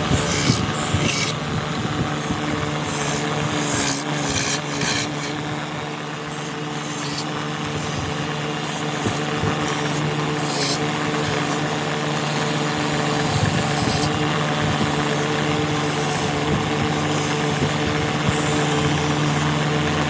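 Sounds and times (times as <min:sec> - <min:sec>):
woodworking machine motor running: 0:00.0 - 0:20.0
hissing of wood being worked: 0:06.3 - 0:15.0.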